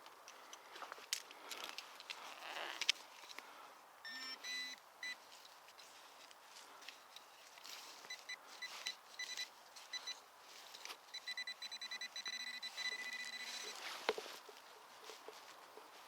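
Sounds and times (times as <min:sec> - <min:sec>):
metal detector beeping: 0:04.0 - 0:05.2, 0:08.0 - 0:10.2, 0:11.1 - 0:13.9.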